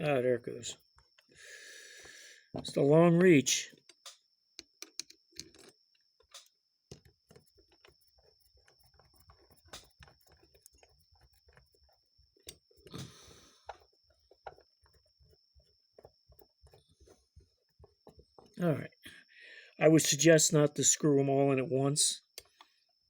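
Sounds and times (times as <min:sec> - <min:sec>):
screwdriver clicks and taps: 0:03.8 - 0:08.0.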